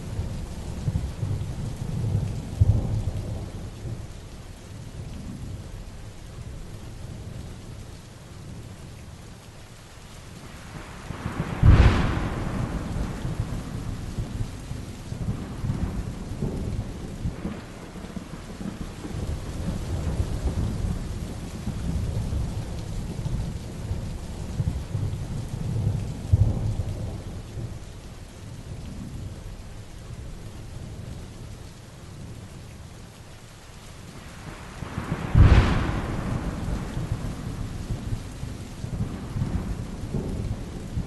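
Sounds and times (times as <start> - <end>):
heavy rain: 0.0 - 41.0
thunder rolling: 11.1 - 24.0, 34.4 - 41.0.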